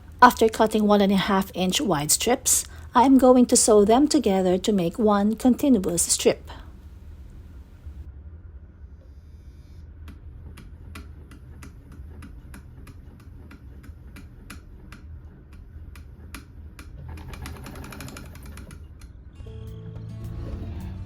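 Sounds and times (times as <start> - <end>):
sewing machine clicking: 10.5 - 19.1.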